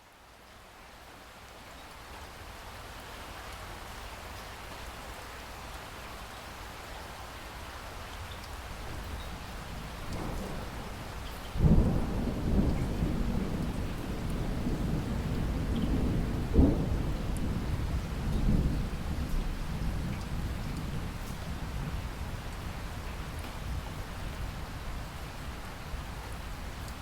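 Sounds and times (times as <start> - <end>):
rain hiss: 0.0 - 27.0
thunder rumbling: 9.8 - 22.0
loud thunder burst: 11.6 - 17.6.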